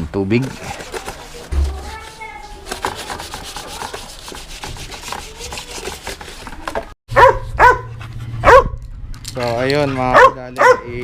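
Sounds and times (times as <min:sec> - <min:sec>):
wet sandpaper scrubbing paint: 0:00.4 - 0:06.7
dog yelping: 0:07.1 - 0:08.8, 0:10.1 - 0:10.9.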